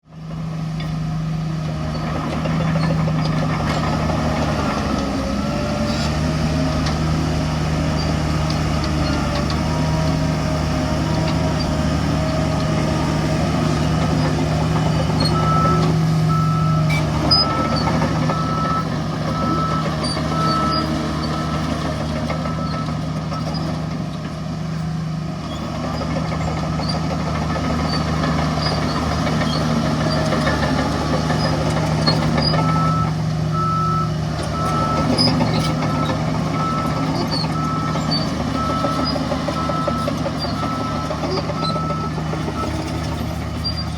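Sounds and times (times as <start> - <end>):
heavy diesel machinery running: 0.0 - 43.9
reversing alarm beeping: 14.6 - 23.7, 32.1 - 43.8.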